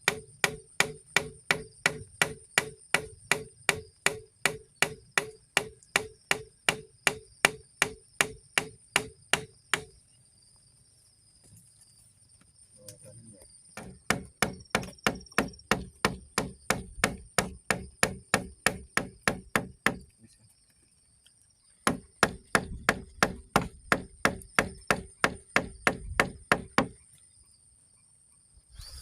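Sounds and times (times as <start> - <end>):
insects shrilling: 26.9 - 29.0
tool blows on wood: 28.7 - 29.0.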